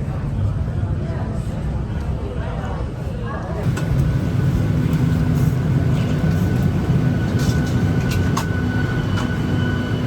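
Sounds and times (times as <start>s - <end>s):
airliner cabin rumble: 3.6s - 10.0s.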